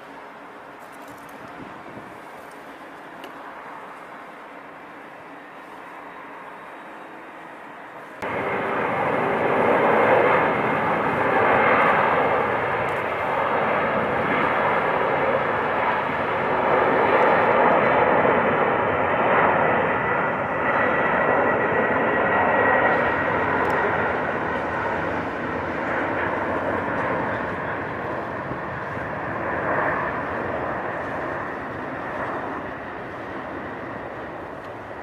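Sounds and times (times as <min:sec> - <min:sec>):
faint whine: 0:00.0 - 0:35.0
jet engines roaring: 0:00.0 - 0:35.0.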